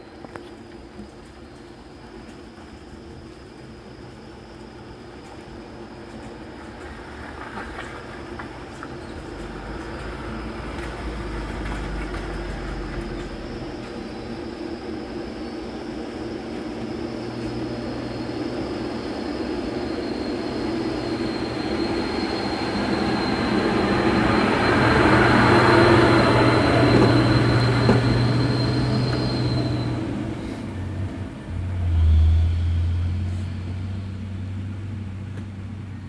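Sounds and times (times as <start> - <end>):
heavy trucks approaching: 8.9 - 14.9, 20.5 - 36.0.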